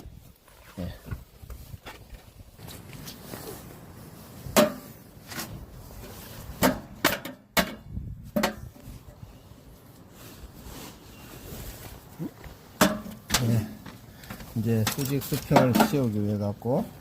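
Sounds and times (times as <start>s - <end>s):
sharp knocks and clunks: 4.5s - 4.9s, 6.6s - 8.8s, 12.8s - 16.1s.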